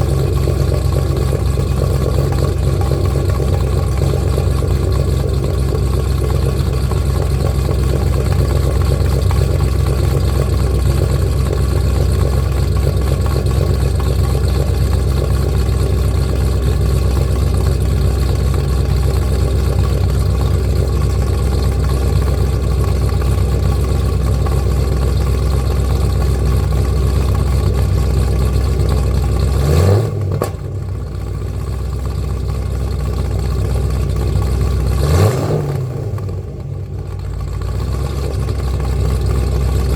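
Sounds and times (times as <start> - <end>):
car engine idling: 0.0 - 39.9
engine revving: 29.5 - 30.7, 34.8 - 36.5.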